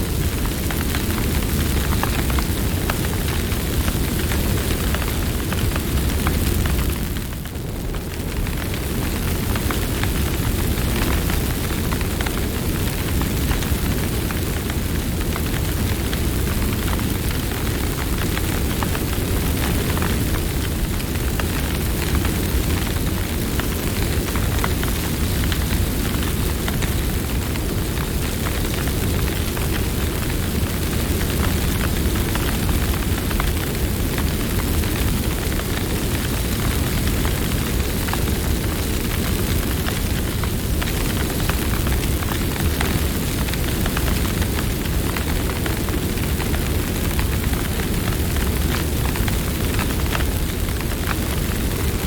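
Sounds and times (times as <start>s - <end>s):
campfire flames rushing: 0.0s - 52.0s
fire crackles and pops: 0.0s - 52.0s.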